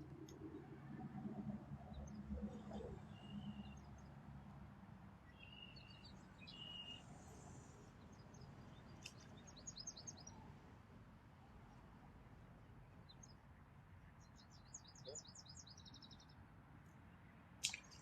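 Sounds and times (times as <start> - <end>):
faint birdsong high chirps: 1.8 - 4.2, 5.2 - 10.6, 12.7 - 18.0.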